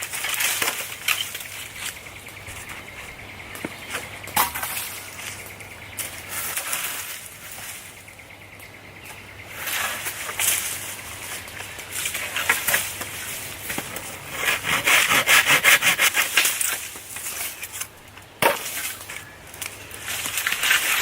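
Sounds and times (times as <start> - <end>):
hand tool scraping wood: 12.0 - 19.1.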